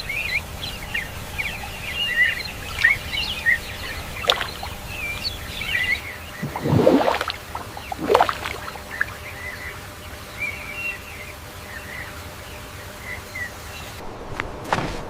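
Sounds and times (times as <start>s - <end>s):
bird chirps: 0.0s - 9.8s
outdoor background ambience: 0.0s - 15.0s.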